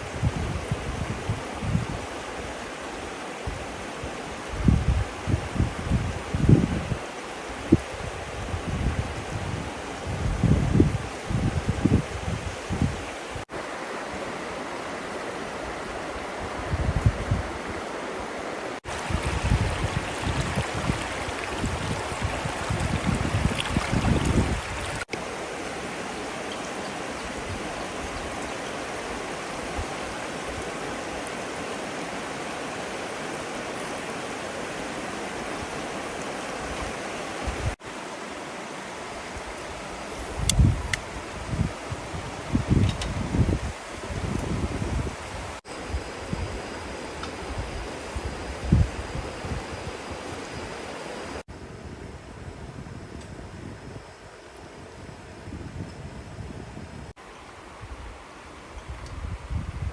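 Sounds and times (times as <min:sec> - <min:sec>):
wind rumbling on microphone: 0:00.0 - 0:13.5, 0:15.6 - 0:18.0, 0:18.8 - 0:25.2, 0:34.7 - 0:37.8, 0:39.2 - 0:59.9
river water flowing: 0:00.0 - 0:51.5, 0:57.2 - 0:59.5.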